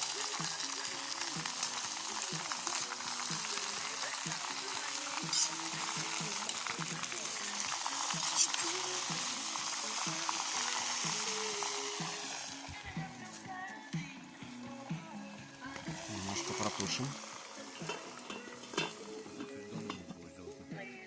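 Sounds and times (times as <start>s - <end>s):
food sizzling in oil: 0.0s - 13.9s, 14.5s - 21.0s.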